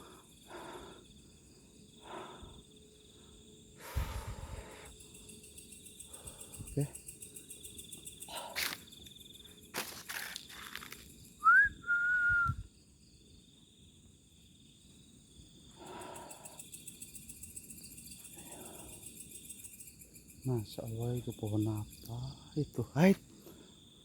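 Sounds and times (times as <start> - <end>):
night insects chorus: 0.0 - 24.0
rustling or stepping: 9.8 - 11.2
two-part whistle: 11.4 - 12.6.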